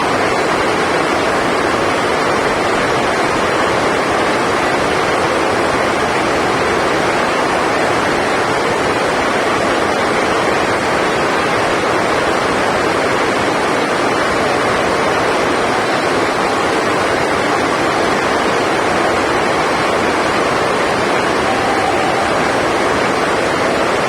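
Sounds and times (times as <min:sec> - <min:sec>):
heavy rain on a roof: 0:00.0 - 0:24.0.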